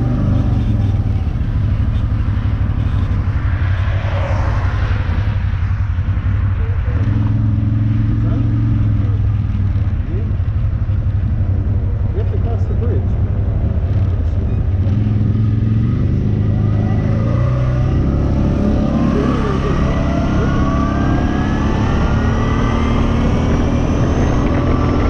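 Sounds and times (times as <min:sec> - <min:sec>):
quad bike engine accelerating: 0:00.0 - 0:25.0.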